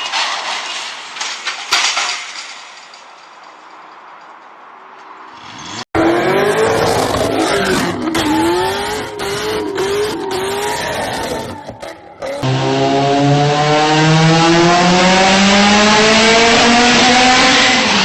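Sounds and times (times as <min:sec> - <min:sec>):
car roar: 0:05.3 - 0:18.0
wavering gliding squeal: 0:06.0 - 0:12.8.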